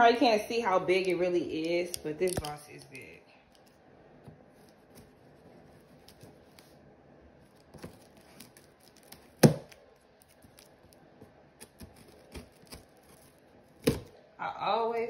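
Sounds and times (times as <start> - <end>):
scissors cutting cardboard: 11.6 - 14.1.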